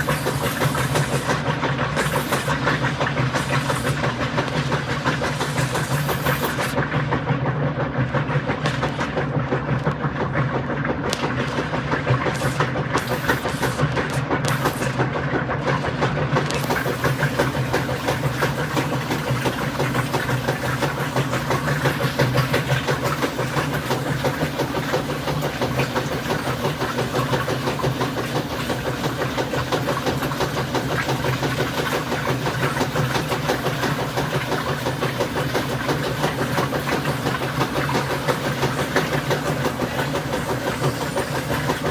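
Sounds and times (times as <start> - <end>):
water hiss: 0.0 - 6.8, 12.3 - 15.0, 16.5 - 24.4, 32.5 - 41.9
washing machine motor hum: 0.0 - 41.9.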